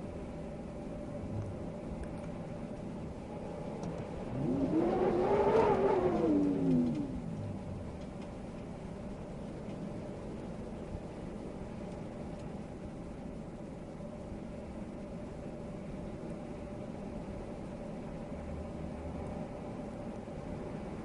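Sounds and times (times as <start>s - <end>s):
wind hiss: 0.0s - 17.5s
motor vehicle passing by: 3.8s - 8.1s.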